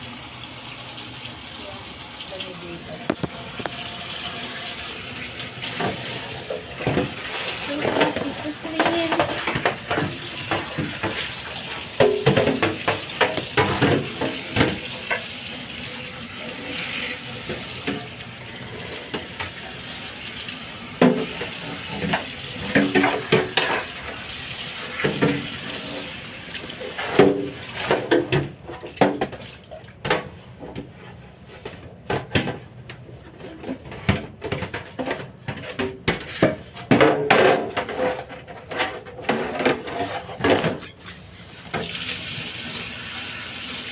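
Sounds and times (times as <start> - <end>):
tap running into sink: 1.3 - 30.9
parts clattering in sink: 2.4 - 42.9.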